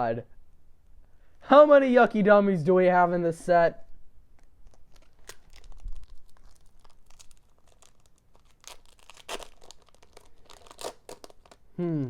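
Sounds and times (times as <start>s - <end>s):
foil wrapper tearing and crinkling: 4.3s - 11.7s.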